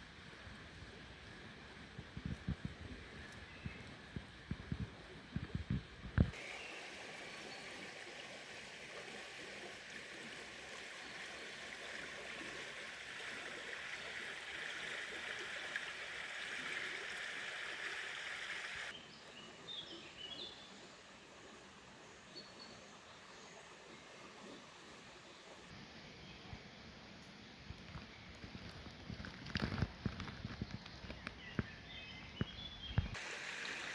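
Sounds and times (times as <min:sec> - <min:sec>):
running water rushing: 0:04.0 - 0:19.7, 0:33.0 - 0:33.9.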